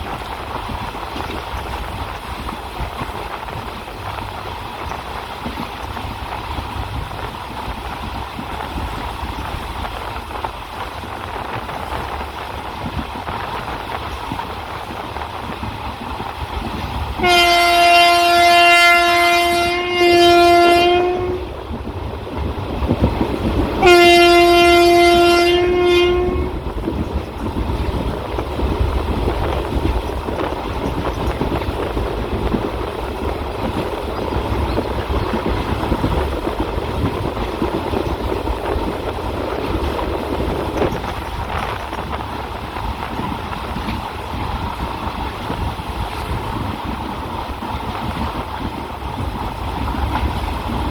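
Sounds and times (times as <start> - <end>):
train rumbling: 0.0 - 50.9
train horn blasts: 17.2 - 21.7, 23.8 - 26.8.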